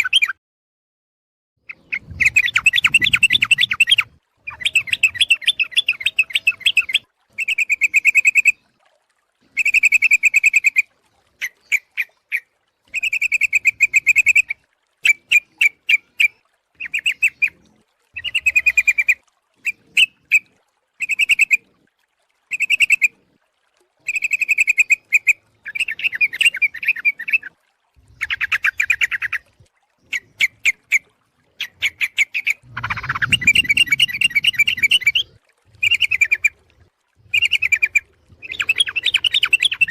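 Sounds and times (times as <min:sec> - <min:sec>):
bird chattering calls: 0:32.4 - 0:35.2
low rumble: 0:32.6 - 0:35.1.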